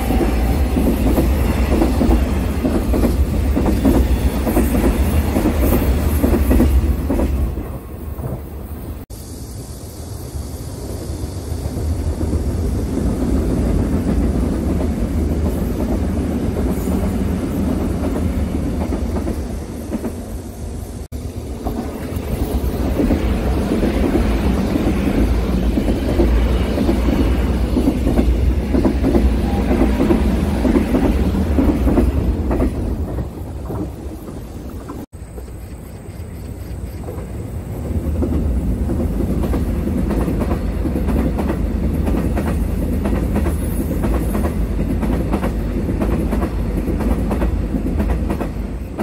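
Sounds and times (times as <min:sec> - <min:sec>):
rapid train wheel clacks: 0:00.0 - 0:08.4, 0:21.6 - 0:35.5, 0:38.0 - 0:49.0
train wheels rumbling on rails: 0:00.0 - 0:49.0.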